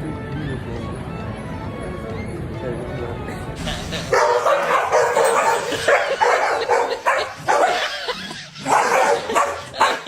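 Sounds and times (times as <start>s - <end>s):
dog barking: 4.1s - 8.0s, 8.6s - 10.0s.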